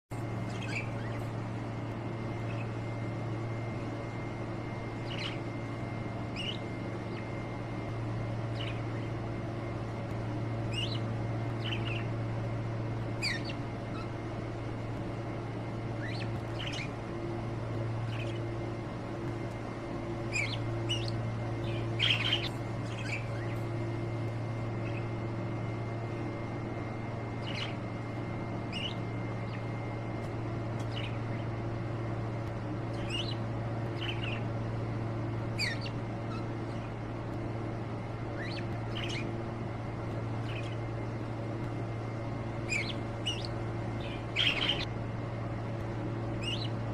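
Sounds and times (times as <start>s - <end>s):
steady low hum: 0.1s - 46.9s
small parrots chirping: 0.4s - 1.6s, 2.3s - 4.2s, 4.8s - 9.4s, 10.3s - 12.4s, 13.1s - 14.2s, 15.9s - 17.1s, 18.0s - 18.8s, 20.1s - 25.2s, 27.3s - 27.9s, 28.6s - 29.8s, 30.8s - 31.5s, 32.9s - 34.5s, 35.4s - 37.0s, 38.3s - 39.4s, 40.3s - 41.4s, 42.6s - 44.9s, 46.3s - 46.8s.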